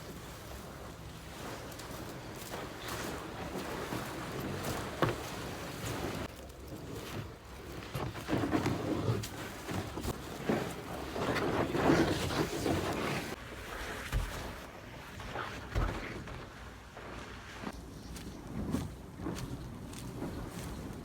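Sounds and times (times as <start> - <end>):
floodwater sloshing and splashing: 0.0 - 17.8
wind buffeting microphone: 17.7 - 21.0.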